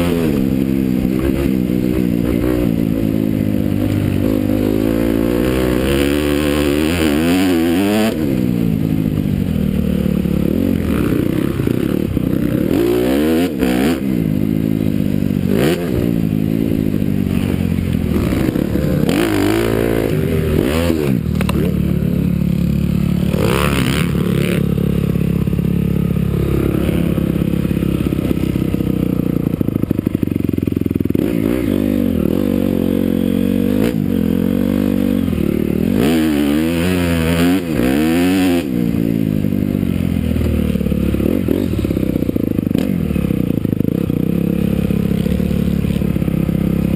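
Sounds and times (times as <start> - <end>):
motocross engine revving: 0.0 - 46.9.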